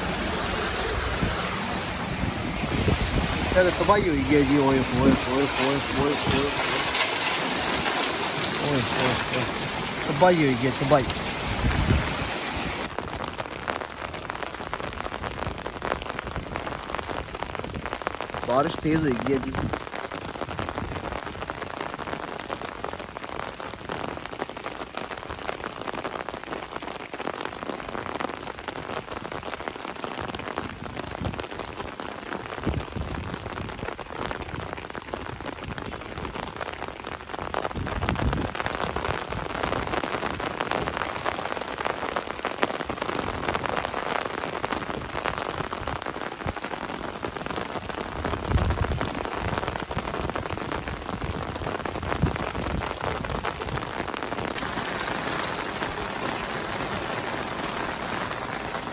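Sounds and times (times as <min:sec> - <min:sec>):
heavy rain pouring: 0:00.0 - 0:58.9.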